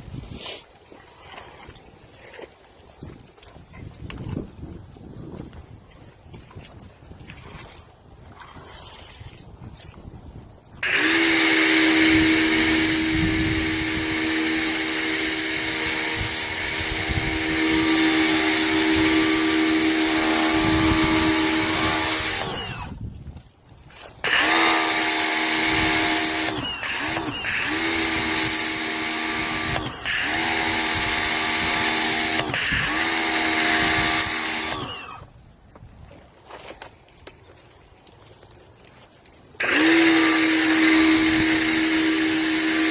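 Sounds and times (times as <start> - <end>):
pressure washer motor hum and hiss: 10.8 - 22.9, 24.2 - 35.2, 39.6 - 42.9.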